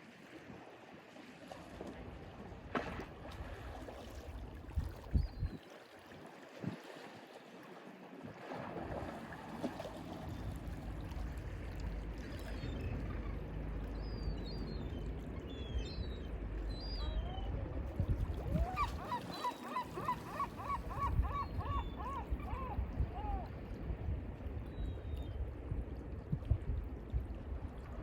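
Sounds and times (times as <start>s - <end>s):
faint bird chirps: 14.0s - 17.6s
gull calling: 16.7s - 17.7s, 18.5s - 23.5s.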